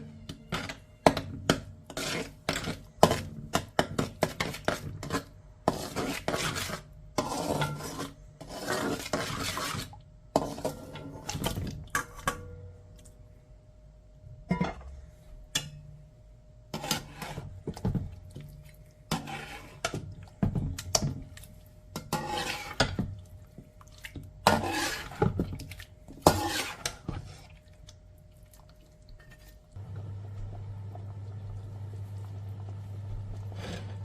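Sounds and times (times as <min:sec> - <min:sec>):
steady low hum: 0:27.2 - 0:34.0.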